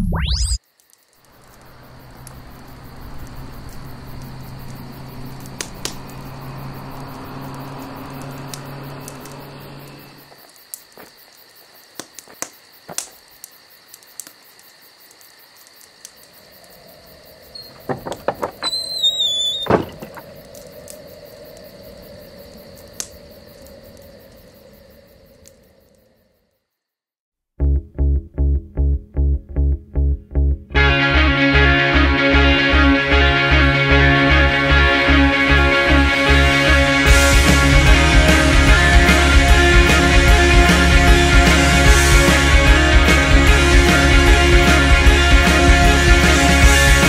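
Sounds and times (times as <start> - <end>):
car engine and road noise: 1.4 - 10.3
snowboard gear clicks and knocks: 17.7 - 18.6
short wavering squeal: 18.6 - 20.0.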